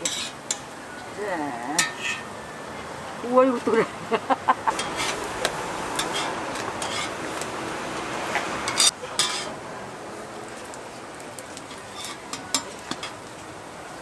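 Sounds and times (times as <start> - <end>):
metal utensils clinking on pan: 0.0 - 0.7, 1.8 - 2.3, 4.7 - 7.2, 8.7 - 9.6, 11.6 - 13.2
pancakes sizzling in oil: 0.0 - 3.8, 4.6 - 14.0.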